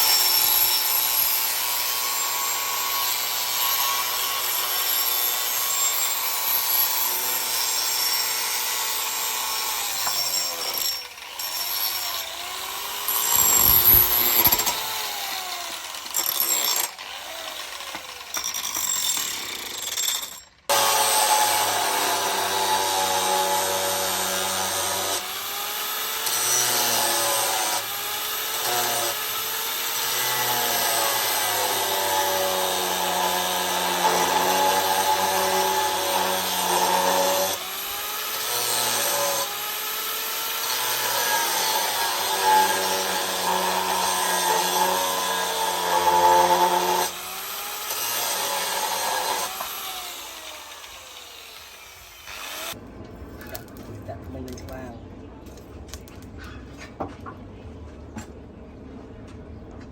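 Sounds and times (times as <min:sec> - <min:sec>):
power tool motor whine on steel: 0:10.0 - 0:16.2.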